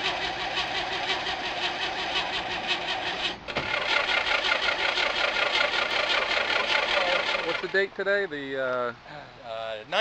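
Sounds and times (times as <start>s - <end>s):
starter cranking engine: 0.0s - 7.8s.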